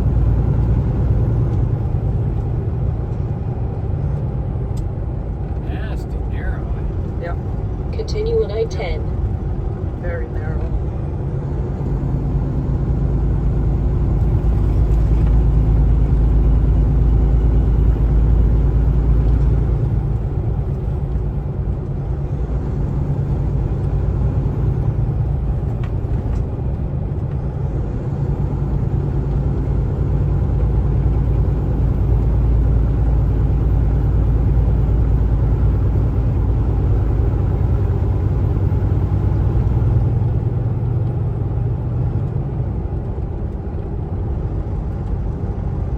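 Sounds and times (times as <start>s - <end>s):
diesel truck engine drone: 0.0s - 45.9s
tyre and road rumble: 0.0s - 45.9s.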